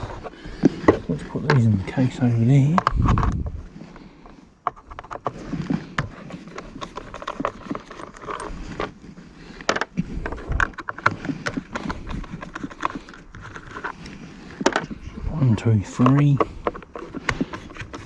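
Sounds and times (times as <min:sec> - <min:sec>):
screws and screwdriver clicking on plastic: 0:09.6 - 0:15.0, 0:15.9 - 0:18.0.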